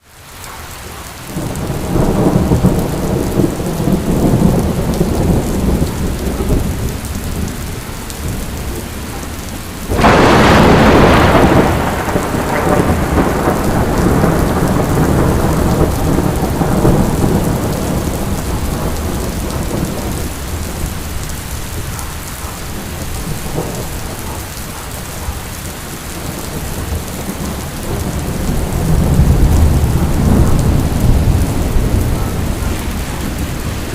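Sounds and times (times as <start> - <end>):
heavy rain falling: 0.0 - 33.9
rolling thunder: 1.2 - 33.9
thunderclap: 1.3 - 33.9.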